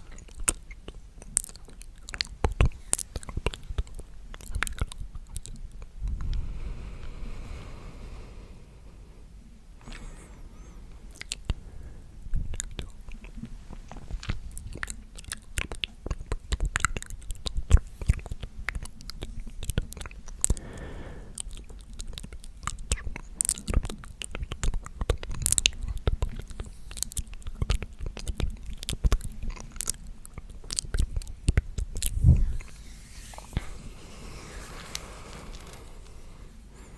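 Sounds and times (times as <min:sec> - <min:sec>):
wet mouth clicks and smacks: 0:00.0 - 0:06.5, 0:11.1 - 0:11.6, 0:12.3 - 0:20.6, 0:21.3 - 0:32.7
breathy whisper: 0:32.0 - 0:36.9.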